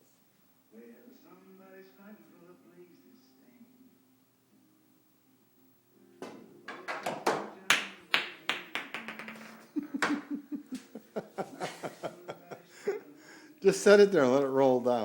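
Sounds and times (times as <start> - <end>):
pool balls clacking: 6.2 - 10.3.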